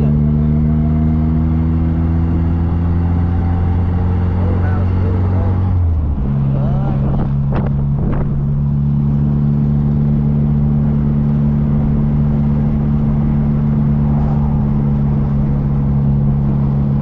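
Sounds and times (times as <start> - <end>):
car engine droning: 0.0 - 17.0
road noise: 0.0 - 17.0.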